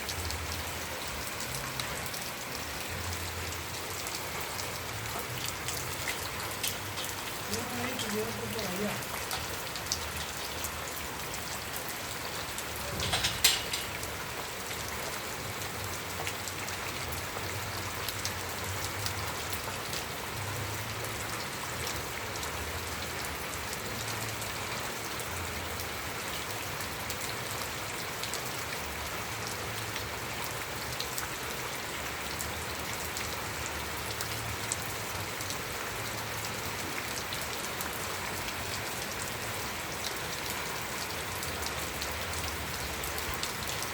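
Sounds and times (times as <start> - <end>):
steady rain falling: 0.0 - 43.9
close drips splashing: 0.1 - 28.6.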